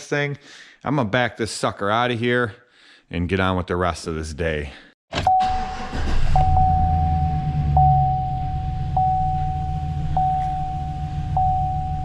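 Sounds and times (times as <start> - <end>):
thin electronic tone: 6.4 - 12.0
truck engine idling: 6.5 - 12.0.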